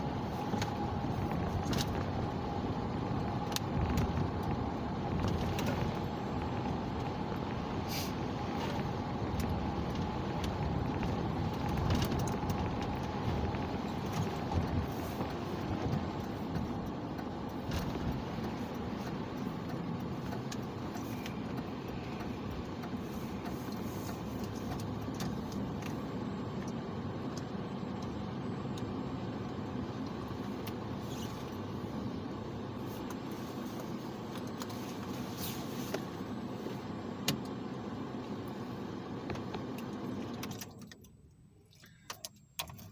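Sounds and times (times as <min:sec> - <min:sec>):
car engine and tyres rumbling: 0:00.0 - 0:42.9
light clicks and ticks: 0:00.5 - 0:07.6, 0:08.7 - 0:31.6.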